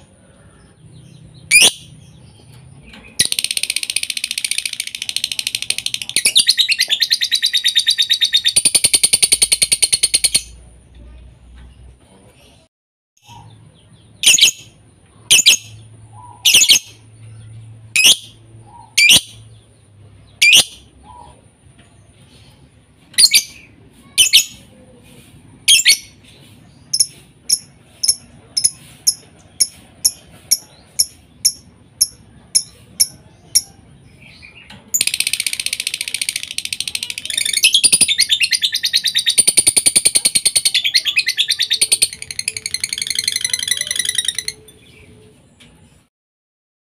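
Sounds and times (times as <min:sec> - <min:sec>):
lovebird calls and chirps: 0:00.0 - 0:10.6, 0:13.2 - 0:21.4, 0:22.2 - 0:24.7, 0:25.6 - 0:45.4
high chattering trill: 0:03.1 - 0:10.8, 0:26.9 - 0:45.1.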